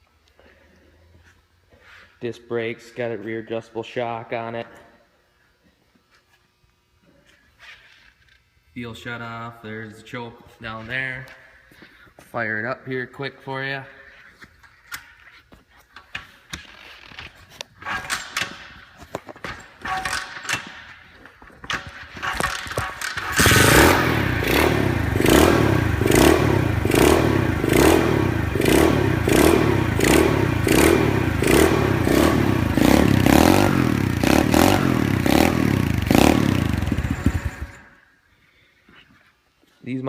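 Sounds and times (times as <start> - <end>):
engine starter clicks and scrapes: 21.7 - 24.4
motorbike engine running: 22.2 - 38.0.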